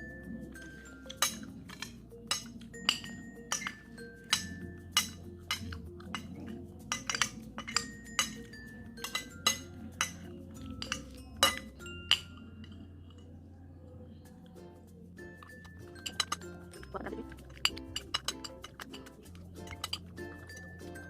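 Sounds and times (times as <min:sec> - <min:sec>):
cutlery clinking against a plate: 0:00.6 - 0:12.8, 0:15.4 - 0:21.0.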